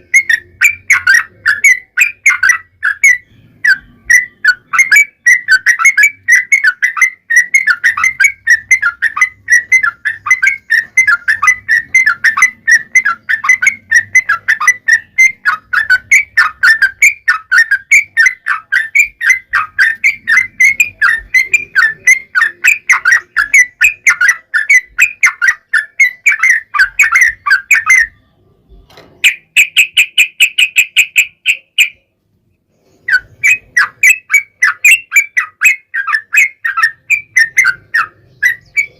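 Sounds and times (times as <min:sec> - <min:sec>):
bird singing chattering whistles: 0:00.0 - 0:28.2, 0:29.2 - 0:32.1, 0:32.8 - 0:38.9.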